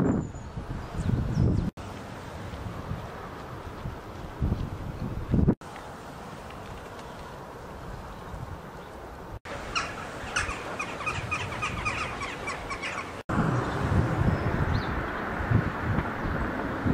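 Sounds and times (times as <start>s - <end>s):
wind gusts on microphone: 0.0s - 5.6s, 6.4s - 16.9s
outdoor background noise: 0.0s - 16.9s
small bird chirping: 9.7s - 13.2s.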